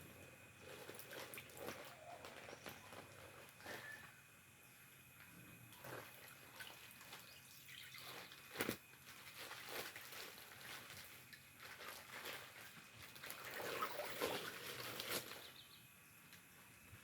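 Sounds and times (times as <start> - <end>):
water trickling and splashing: 0.7 - 2.5, 5.7 - 15.5.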